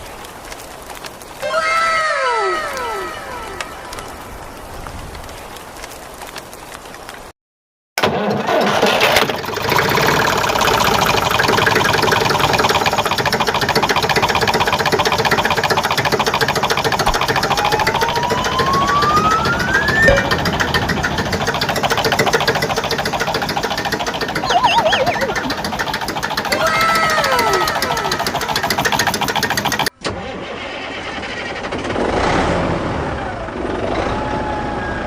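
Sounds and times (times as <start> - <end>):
engine chugging: 8.3 - 29.9
rising whistle-like tone: 17.1 - 20.8, 24.4 - 25.7.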